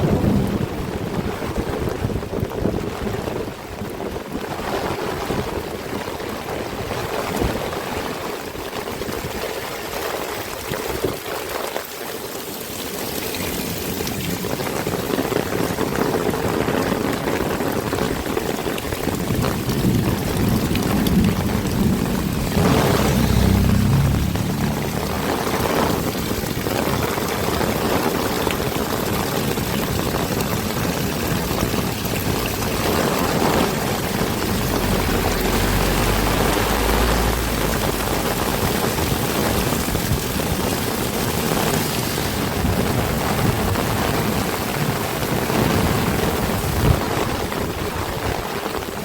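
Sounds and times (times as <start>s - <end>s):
heavy rain pouring: 0.0s - 49.0s
low rumble: 19.5s - 27.9s, 31.3s - 41.6s.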